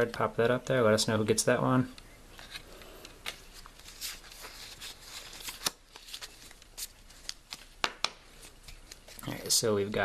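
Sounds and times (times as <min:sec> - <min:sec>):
cards sliding and clicking: 0:02.3 - 0:09.2.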